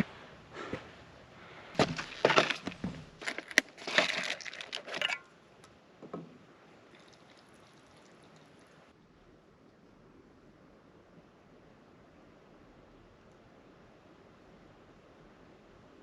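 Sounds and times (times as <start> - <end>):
crinkling handling noises: 1.7 - 5.4.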